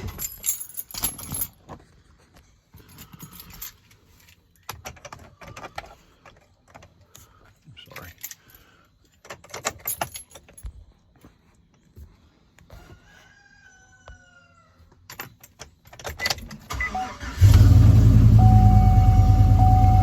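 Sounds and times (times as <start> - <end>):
keys jangling in ignition: 0.0 - 1.7, 2.8 - 5.0, 7.8 - 8.6, 9.2 - 10.7
engine cranking and idling: 16.6 - 20.0.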